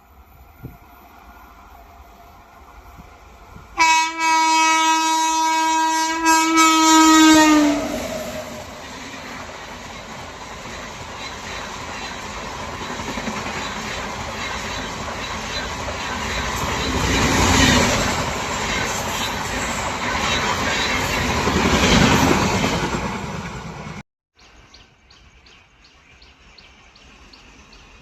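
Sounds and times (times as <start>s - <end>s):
express train passing: 0.0s - 24.0s, 25.3s - 28.0s
locomotive horn blast: 3.8s - 8.1s.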